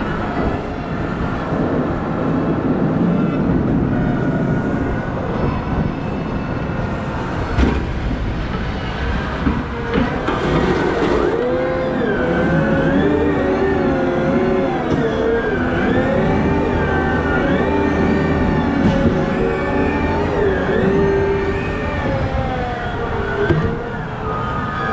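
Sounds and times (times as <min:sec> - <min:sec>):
diesel engine rumbling: 0:00.0 - 0:24.9
pitched whine rising and falling: 0:11.2 - 0:23.5.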